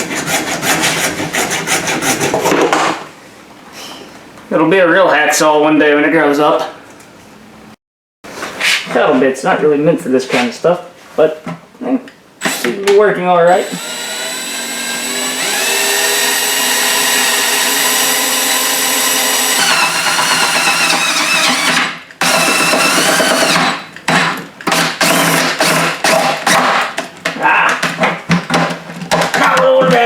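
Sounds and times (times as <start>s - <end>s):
electric drill boring plastic: 13.6s - 23.7s.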